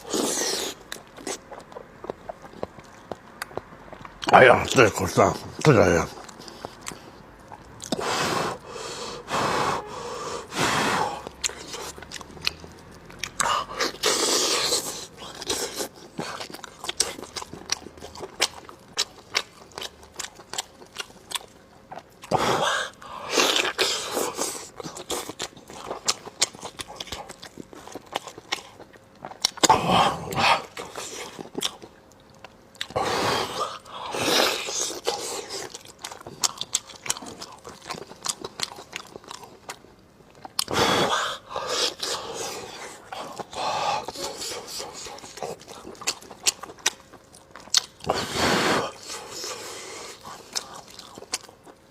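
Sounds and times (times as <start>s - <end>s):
biting or slurping: 0.0s - 4.4s, 9.3s - 31.9s, 32.8s - 39.5s
wet chewing smacks: 0.0s - 8.0s, 11.2s - 22.4s, 33.6s - 48.2s.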